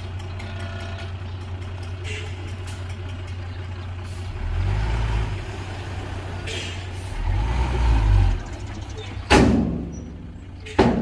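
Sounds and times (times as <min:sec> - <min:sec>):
heavy diesel engine idling: 0:00.0 - 0:07.4.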